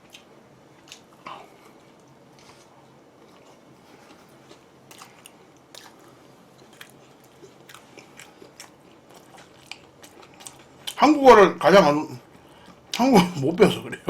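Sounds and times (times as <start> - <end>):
person chewing food: 0.0 - 11.0
small crunches and wet clicks: 3.3 - 11.0.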